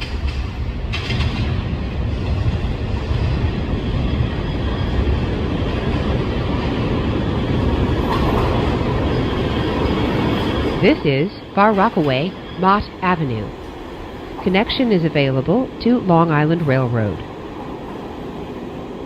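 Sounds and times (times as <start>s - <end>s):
wheels clattering over rails: 0.0s - 2.6s
subway train rumble: 0.0s - 19.0s.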